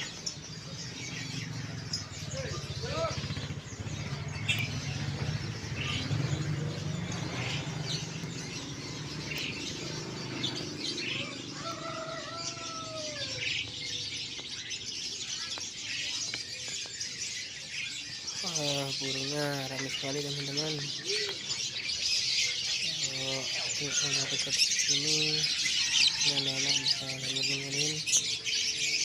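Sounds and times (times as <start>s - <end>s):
songbirds chirping: 0.0s - 29.0s.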